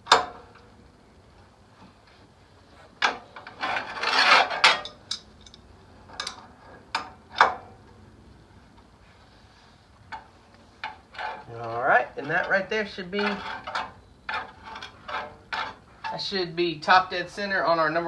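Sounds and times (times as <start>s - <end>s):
metallic clicks and knocks: 0.0s - 0.9s, 2.9s - 8.0s, 10.1s - 17.4s
scraping rub: 1.8s - 5.5s, 8.6s - 18.0s.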